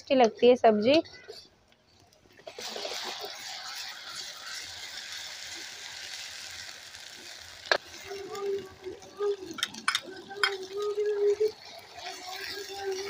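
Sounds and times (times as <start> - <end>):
onions sizzling in hot oil: 1.8 - 13.0
steel ladle scraping pan: 2.5 - 6.7.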